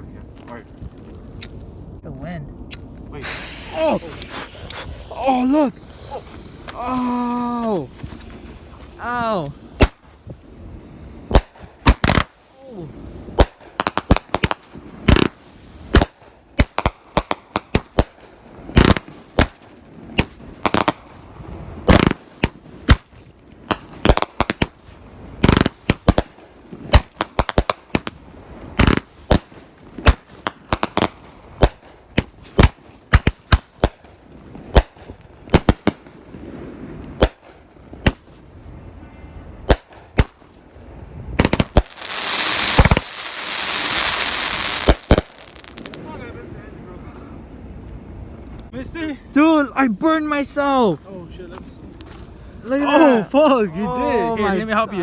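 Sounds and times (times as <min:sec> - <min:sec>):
fireworks banging and popping: 0:02.8 - 0:10.4, 0:11.1 - 0:12.6, 0:13.2 - 0:38.5, 0:39.6 - 0:40.7, 0:41.3 - 0:46.3.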